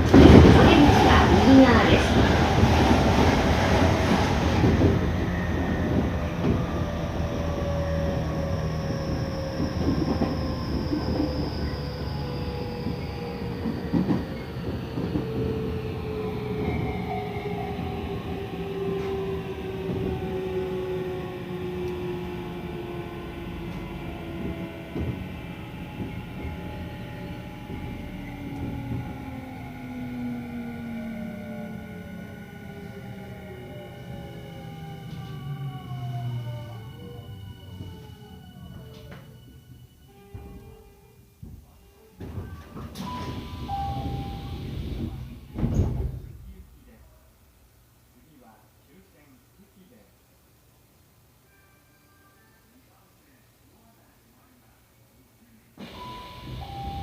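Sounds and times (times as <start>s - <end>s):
wheels rumbling on rail: 0.0s - 40.9s, 42.2s - 46.6s.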